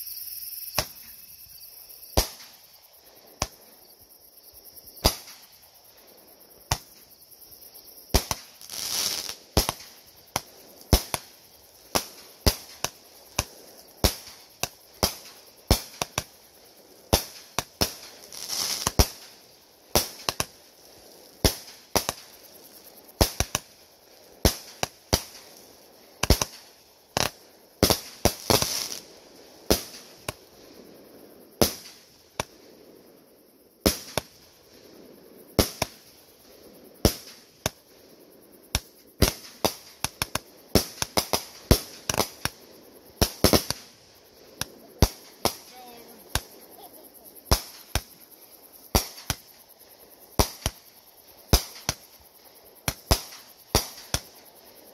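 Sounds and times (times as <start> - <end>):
fireworks hissing crackle: 0.0 - 54.9
fireworks bangs: 0.6 - 1.3, 2.1 - 2.8, 4.9 - 5.6, 8.1 - 23.8, 26.2 - 30.7, 31.6 - 32.7, 33.8 - 34.6, 35.5 - 36.2, 38.7 - 49.6, 50.3 - 52.2, 52.8 - 54.4.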